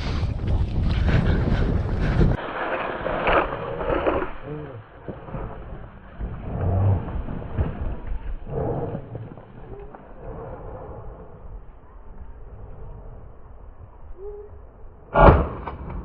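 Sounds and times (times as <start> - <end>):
outdoor rustling: 0.0 - 16.0
wind buffeting microphone: 0.0 - 16.0
faint animal calls: 8.4 - 13.0, 14.0 - 14.9.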